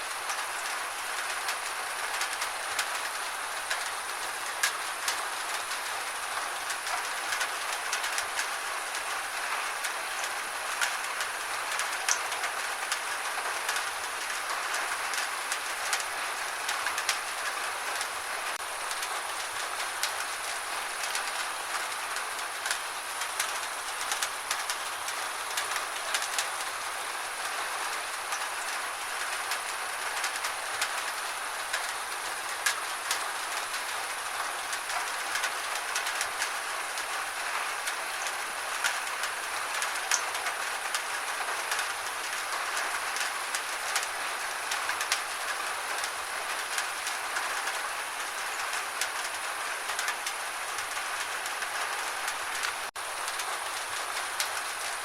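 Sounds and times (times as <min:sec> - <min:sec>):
gentle rain falling: 0:00.0 - 0:55.0.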